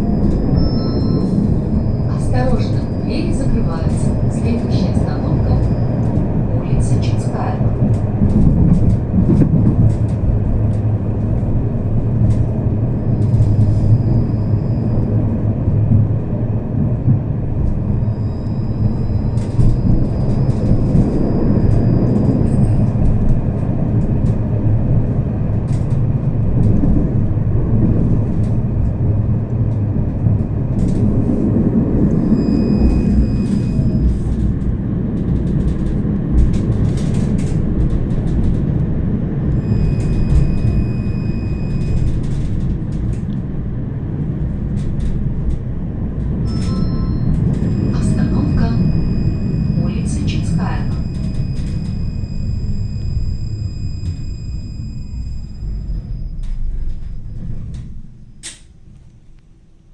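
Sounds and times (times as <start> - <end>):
tram wheels rumbling on rails: 0.0 - 59.9
thin high-pitched tones: 46.5 - 51.4.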